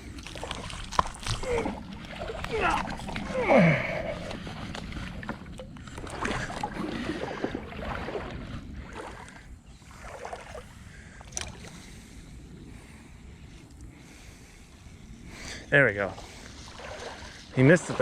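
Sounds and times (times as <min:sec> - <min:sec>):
creek water splashing: 0:00.0 - 0:11.9, 0:15.8 - 0:18.0.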